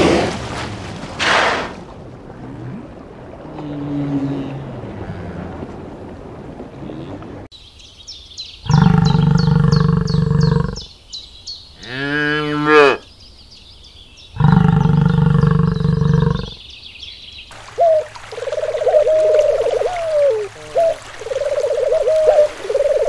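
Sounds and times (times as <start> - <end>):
bird chirping: 7.5 - 12.1
bison bellowing: 8.7 - 10.8.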